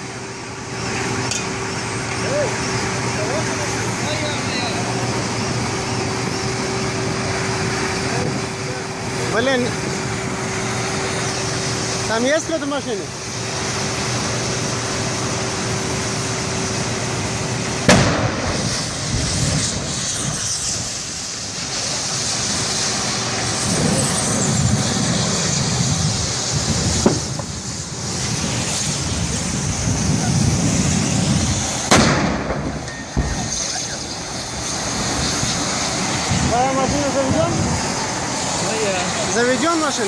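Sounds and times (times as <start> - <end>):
traffic noise: 0.0 - 40.0
sharp explosion bangs: 17.8 - 20.4, 23.7 - 28.6, 29.8 - 34.0.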